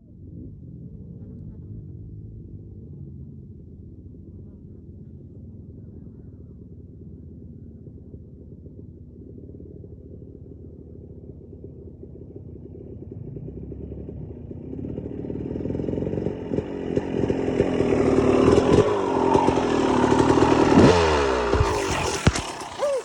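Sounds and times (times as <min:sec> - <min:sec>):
dirt bike engine: 0:14.5 - 0:23.0.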